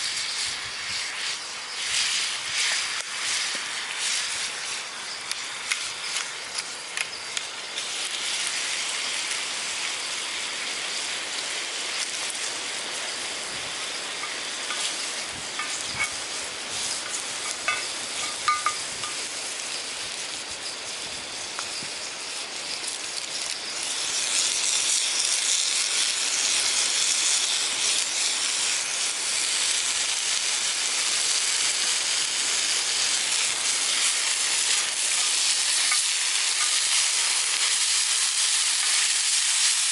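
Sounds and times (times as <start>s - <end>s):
vegetables sizzling in frying: 0.0s - 39.9s.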